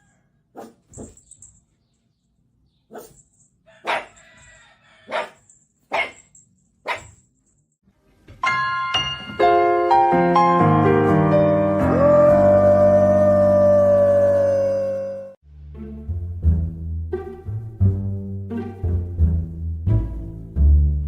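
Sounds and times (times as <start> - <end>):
dog barking: 0.5 - 1.2, 2.9 - 3.2, 3.8 - 4.2, 5.1 - 7.2
keyboard music: 8.4 - 14.4.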